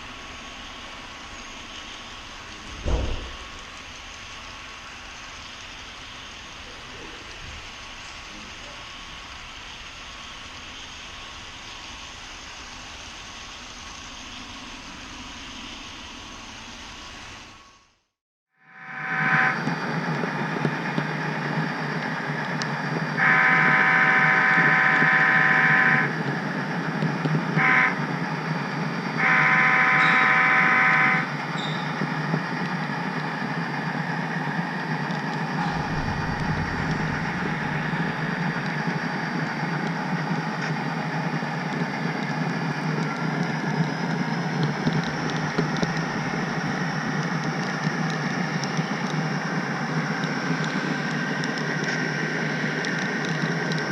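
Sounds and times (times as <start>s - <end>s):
model train rumbling on track: 0.0s - 17.6s, 18.7s - 53.9s
model train horn blasts: 18.6s - 19.9s, 23.2s - 26.3s, 27.5s - 28.2s, 29.1s - 31.5s.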